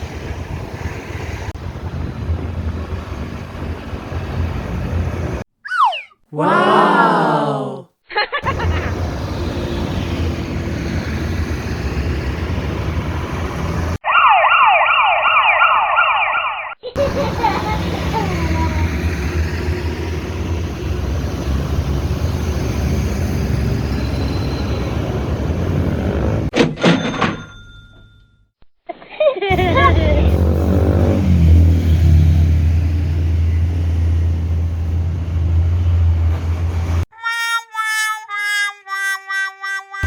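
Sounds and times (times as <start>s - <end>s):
heavy truck engines running: 0.0s - 5.4s, 8.4s - 14.0s, 17.0s - 26.6s, 29.5s - 37.1s
rising siren wail: 9.5s - 16.7s.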